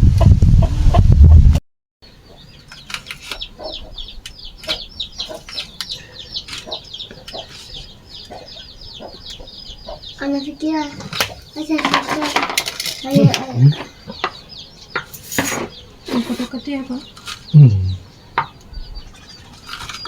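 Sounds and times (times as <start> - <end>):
chicks peeping: 2.0 - 20.0.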